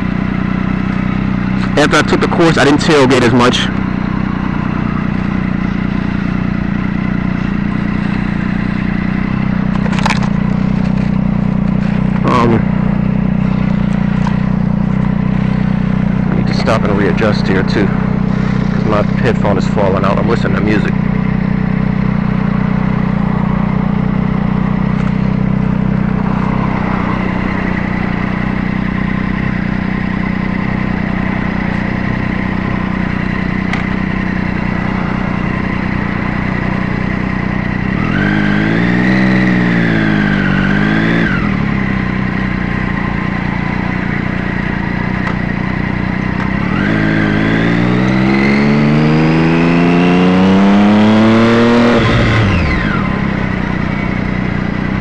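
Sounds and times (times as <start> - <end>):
motorcycle engine: 0.0 - 55.0.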